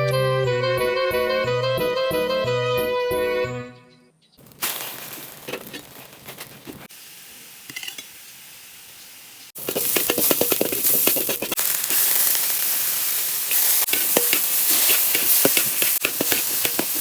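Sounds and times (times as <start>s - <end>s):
background music: 0.0s - 4.1s
food sizzling in a hot pan: 4.6s - 6.1s, 6.8s - 17.0s.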